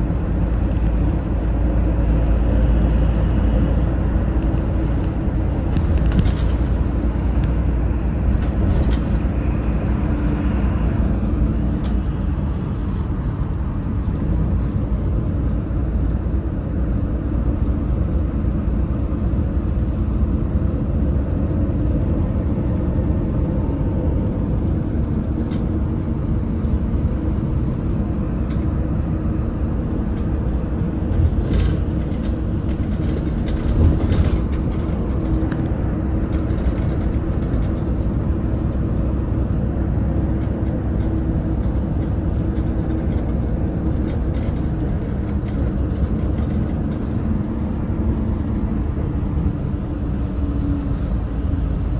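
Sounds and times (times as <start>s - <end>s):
bus engine running: 0.0s - 51.9s
road noise: 0.0s - 51.9s.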